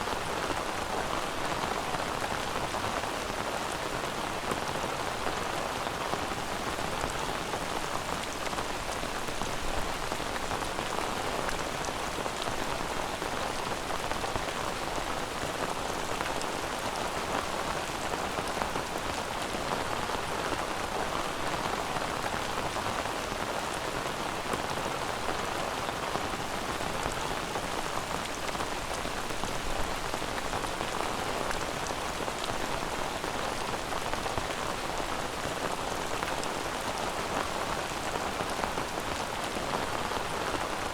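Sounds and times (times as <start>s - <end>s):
steady rain patter: 0.0s - 40.9s.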